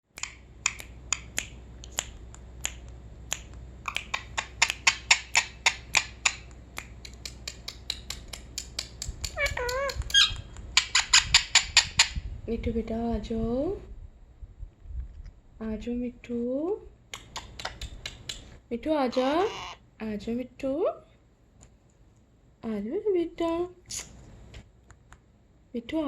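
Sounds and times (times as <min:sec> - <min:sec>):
sharp clicks: 0:00.1 - 0:11.0.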